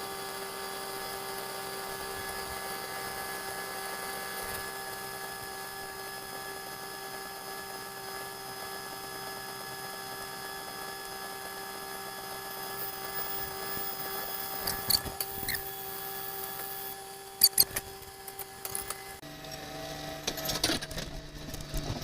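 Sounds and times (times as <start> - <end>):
sharp clicks and knocks: 17.4 - 19.0.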